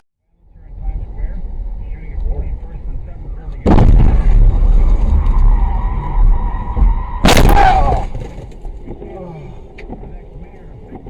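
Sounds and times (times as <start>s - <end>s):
heavy low rumble: 0.2s - 11.0s
loud sudden bang: 3.6s - 8.5s.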